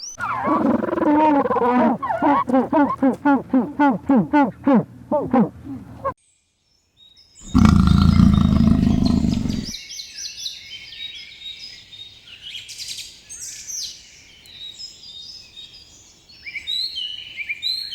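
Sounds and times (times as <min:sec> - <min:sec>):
small birds chirping: 0:00.0 - 0:06.1, 0:07.5 - 0:09.7
deep animal roar: 0:00.2 - 0:04.0, 0:07.5 - 0:09.7.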